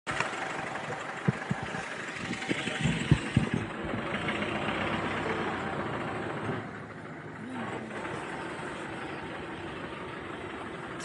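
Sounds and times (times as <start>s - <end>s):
vehicle engine idling: 0.1s - 11.0s
short low thumps: 1.2s - 3.9s.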